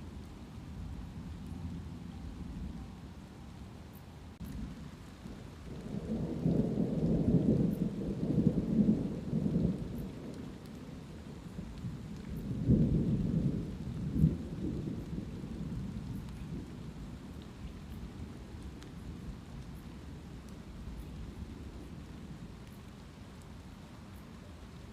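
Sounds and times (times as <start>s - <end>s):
light rain: 0.0s - 24.9s
thunder rumbling: 4.4s - 23.4s.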